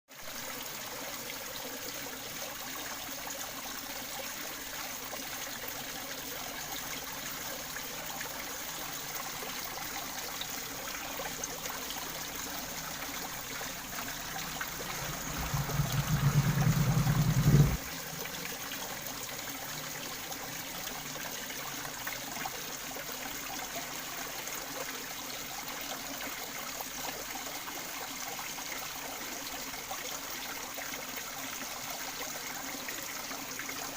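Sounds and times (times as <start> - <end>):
water trickling into pond: 0.1 - 33.9
low rumble: 11.4 - 18.5.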